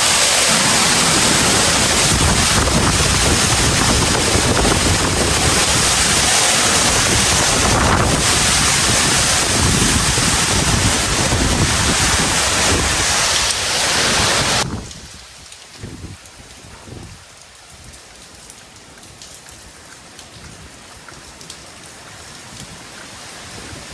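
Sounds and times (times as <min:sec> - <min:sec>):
wind gusts buffeting microphone: 0:00.0 - 0:17.2
heavy rain: 0:00.0 - 0:23.9.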